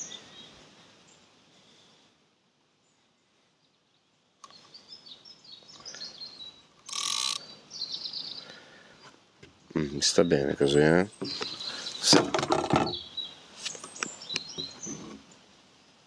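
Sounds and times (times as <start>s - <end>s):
small birds chirping: 0.0s - 2.0s, 2.8s - 16.0s.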